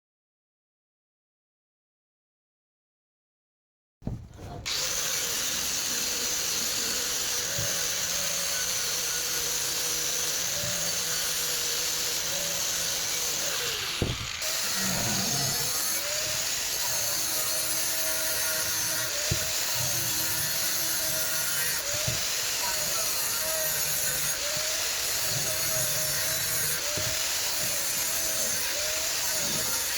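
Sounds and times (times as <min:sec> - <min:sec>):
knock: 0:04.0 - 0:04.6, 0:14.0 - 0:14.2
power tool running: 0:04.1 - 0:29.9.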